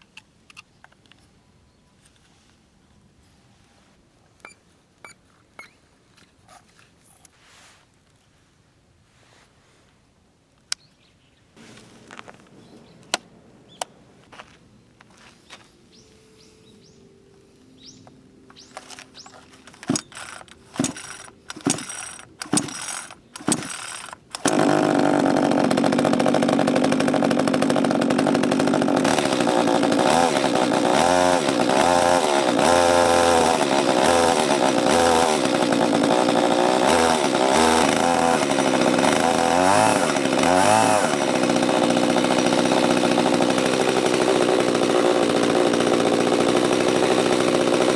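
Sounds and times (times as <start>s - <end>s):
chainsaw starting and revving: 19.6s - 47.9s.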